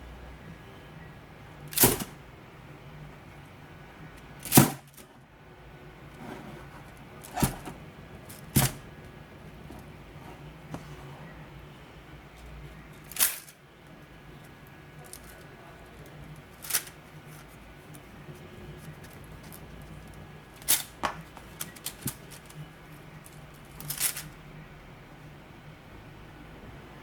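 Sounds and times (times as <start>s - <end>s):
steady low hum: 0.0s - 27.0s
plastic toy clacking: 13.0s - 13.6s, 15.0s - 17.4s, 19.0s - 22.6s, 23.2s - 24.4s.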